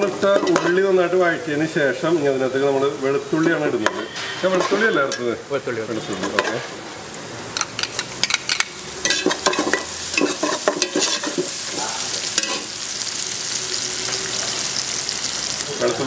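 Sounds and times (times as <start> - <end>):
onions and garlic sizzling in oil: 0.0 - 16.0
metal ladle scraping a pot: 3.8 - 5.2, 9.0 - 11.5.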